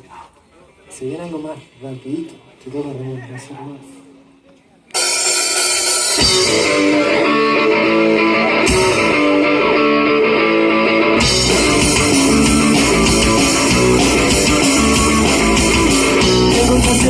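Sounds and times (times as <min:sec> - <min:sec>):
cymbal crash: 0:05.0 - 0:07.2
guitar riff: 0:05.0 - 0:17.0
rock band playing: 0:05.0 - 0:17.0.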